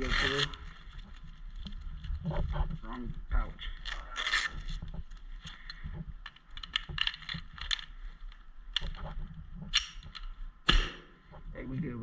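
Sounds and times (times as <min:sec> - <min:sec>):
airsoft gear clicking and rattling: 0:00.0 - 0:10.5
pistol pulled from belt pouches: 0:03.8 - 0:09.0.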